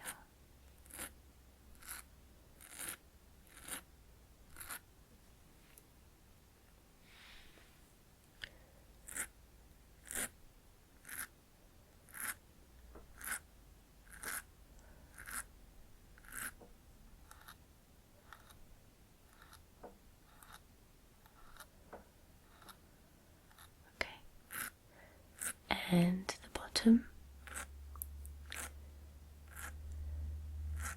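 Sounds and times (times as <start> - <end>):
mascara wand brushing lashes: 1.8 - 3.8, 14.1 - 14.5, 15.1 - 15.5, 27.4 - 28.8, 29.5 - 29.8.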